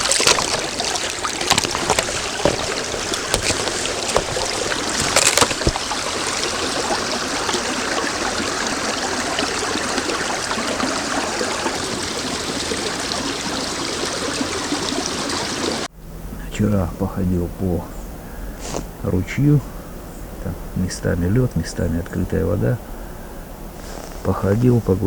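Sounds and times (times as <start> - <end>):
stream water rushing: 0.0 - 15.9.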